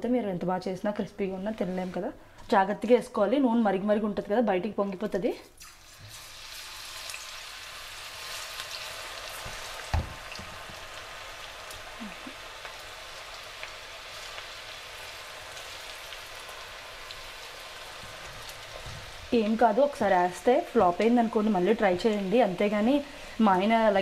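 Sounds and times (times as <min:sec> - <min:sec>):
batter sizzling in hot oil: 0:05.6 - 0:24.0.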